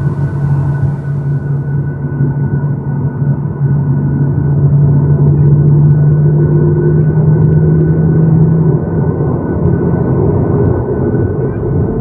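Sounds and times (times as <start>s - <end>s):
low hum: 0.0s - 1.9s
jet engine cabin rumble: 0.0s - 2.0s.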